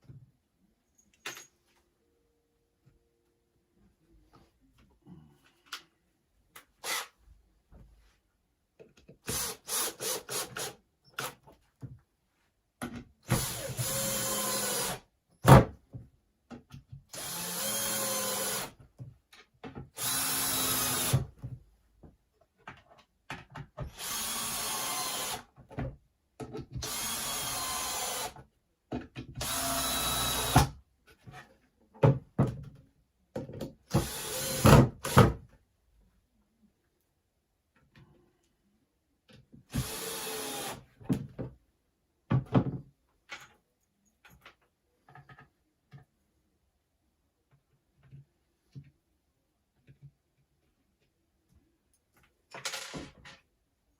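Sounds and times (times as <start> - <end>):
power drill driving screws: 6.8 - 7.1, 13.3 - 15.0, 17.2 - 18.8, 20.0 - 21.3, 23.9 - 25.4, 26.8 - 28.4, 29.4 - 30.7, 33.9 - 35.4, 39.7 - 40.8.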